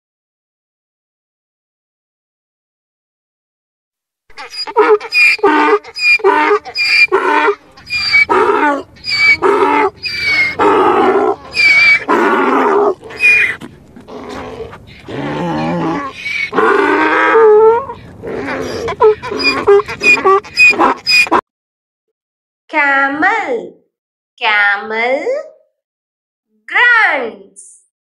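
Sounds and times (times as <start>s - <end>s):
donkey braying: 4.3s - 21.4s.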